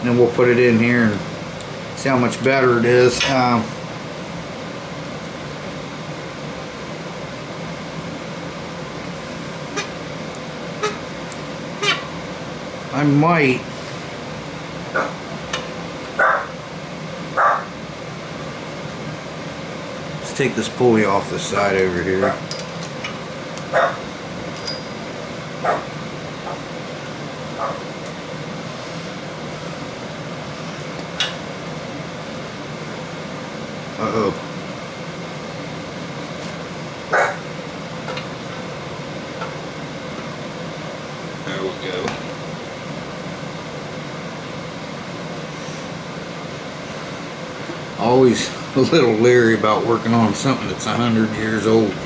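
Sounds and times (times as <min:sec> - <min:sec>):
steady hiss with faint hum: 0:00.0 - 0:52.0
dog barking: 0:16.2 - 0:16.5, 0:17.4 - 0:17.7, 0:23.7 - 0:24.0, 0:25.6 - 0:25.9, 0:27.6 - 0:27.8, 0:37.1 - 0:37.4.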